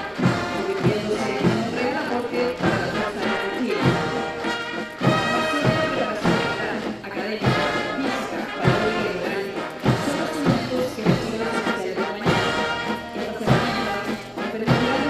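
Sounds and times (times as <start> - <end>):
bass drum beat: 0.0 - 11.7, 13.4 - 15.0
military band playing a march: 0.0 - 15.0.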